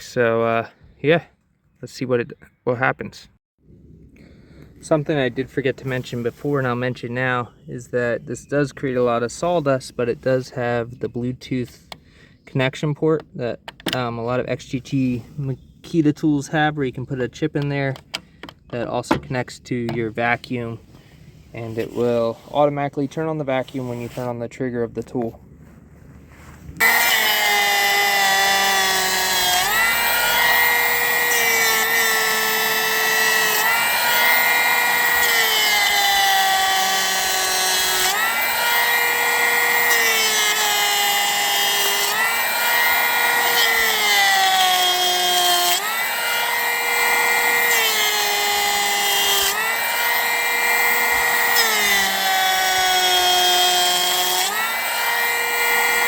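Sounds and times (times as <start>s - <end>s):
electric hand planer whining: 26.8s - 56.0s.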